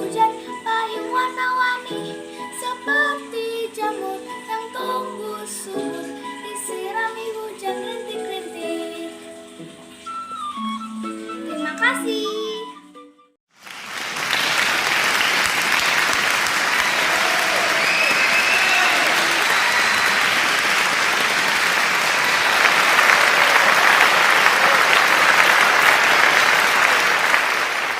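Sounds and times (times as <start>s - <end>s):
audience applause: 13.5s - 27.9s.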